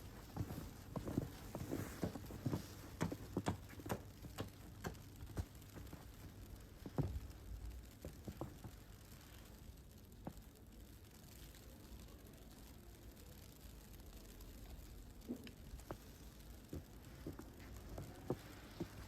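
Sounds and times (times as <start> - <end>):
footsteps on snow: 0.0 - 3.5.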